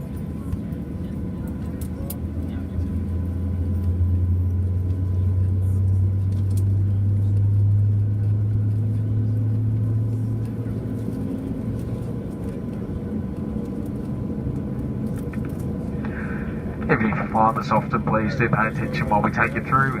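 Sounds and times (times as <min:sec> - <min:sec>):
aircraft cabin drone: 0:00.0 - 0:20.0.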